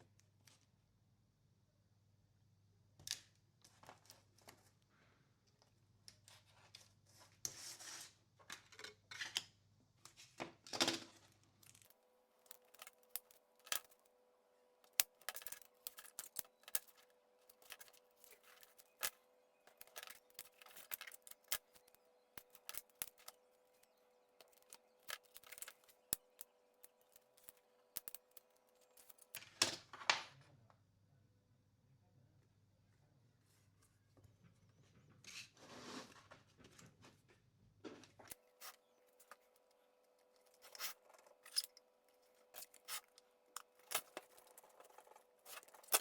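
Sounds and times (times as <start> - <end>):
small hard parts clicking and tapping: 11.6 - 14.2, 14.8 - 29.8.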